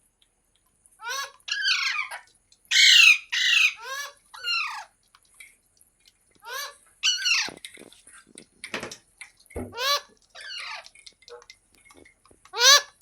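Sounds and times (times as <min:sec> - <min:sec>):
parakeet squawking: 0:01.0 - 0:04.9, 0:06.4 - 0:07.6, 0:09.7 - 0:10.9, 0:12.6 - 0:13.0.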